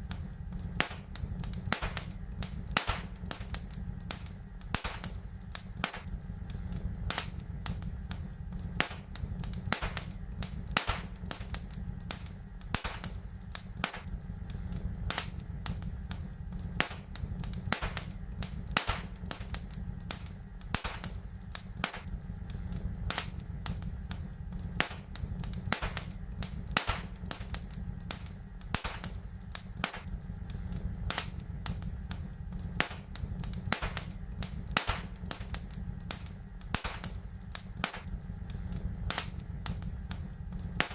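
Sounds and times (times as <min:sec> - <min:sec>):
fire crackling and popping: 0:00.0 - 0:40.9
low fire rumble: 0:00.0 - 0:40.9.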